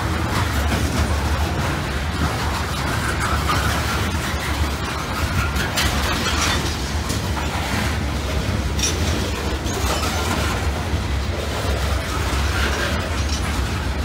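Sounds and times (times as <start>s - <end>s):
train wheels rumbling on rail: 0.0s - 14.0s
clanks from cars and couplers: 0.2s - 10.8s.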